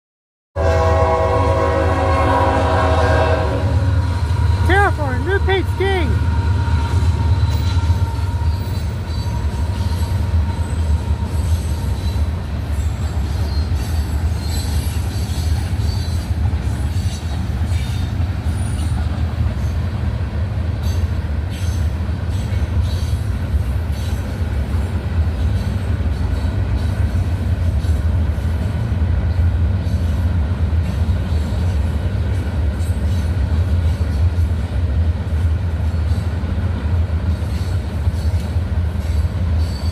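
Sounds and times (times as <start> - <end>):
freight train rumbling past: 0.6 - 39.9
wheel squeal: 7.4 - 17.2.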